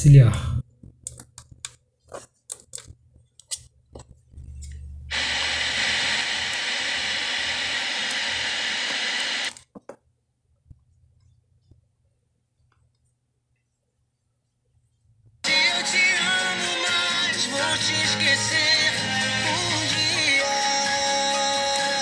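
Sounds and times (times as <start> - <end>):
radio static hiss: 5.1 - 9.5.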